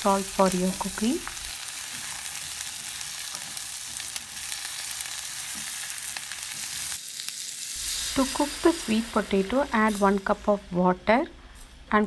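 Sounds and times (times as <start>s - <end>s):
vegetables sizzling in oil: 0.0s - 11.7s.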